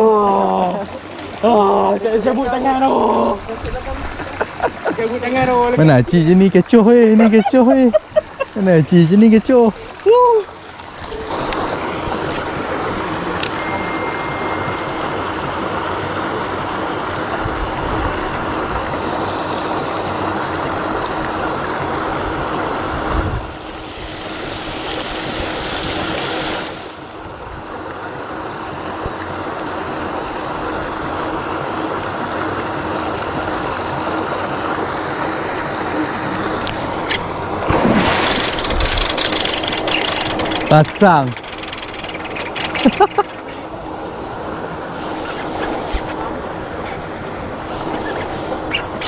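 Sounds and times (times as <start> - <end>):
churning rush of water: 0.0 - 49.0
low motor hum: 0.0 - 49.0
fish splashing: 29.7 - 49.0.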